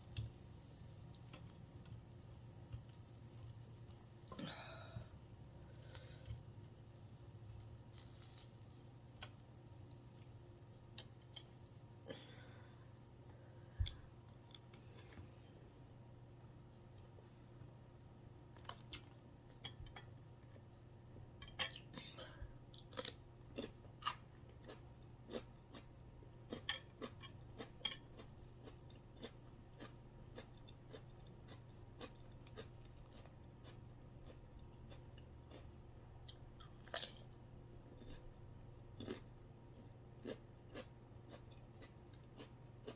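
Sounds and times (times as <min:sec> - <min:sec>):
faint steady hum: 0:00.0 - 0:42.9
person chewing and crunching food: 0:07.7 - 0:10.4, 0:22.7 - 0:42.9.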